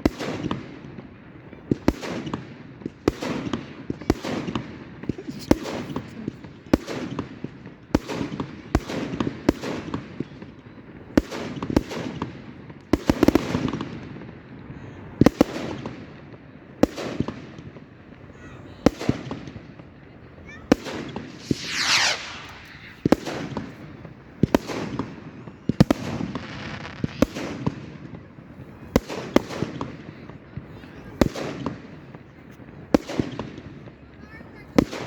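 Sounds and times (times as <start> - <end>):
fireworks bangs: 16.8 - 33.9.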